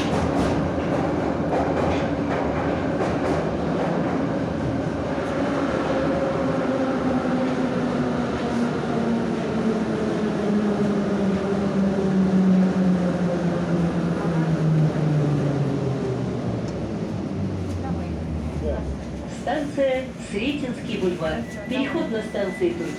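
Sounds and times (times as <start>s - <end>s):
train wheels rumbling: 0.0s - 22.9s
train traction whine: 5.2s - 22.9s.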